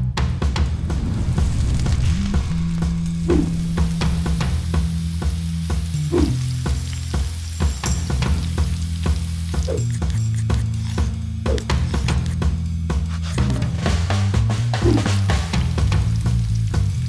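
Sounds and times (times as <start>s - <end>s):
background music with bass line: 0.0s - 17.0s
vegetables sizzling in hot oil: 3.4s - 11.0s.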